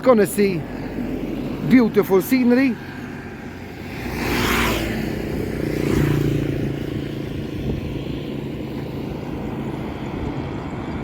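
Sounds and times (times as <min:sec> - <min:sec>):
highway traffic passing: 0:00.0 - 0:11.0.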